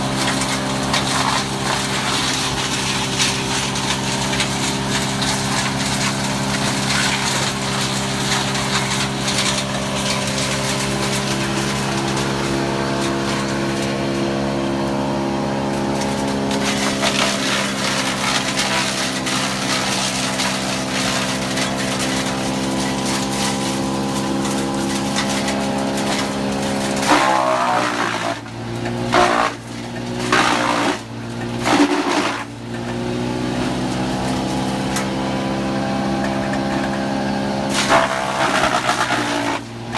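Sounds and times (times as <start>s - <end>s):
wood chipper engine running: 0.0s - 39.9s
wood crunching in chipper: 0.0s - 39.9s
loud wood cracks: 16.0s - 28.5s.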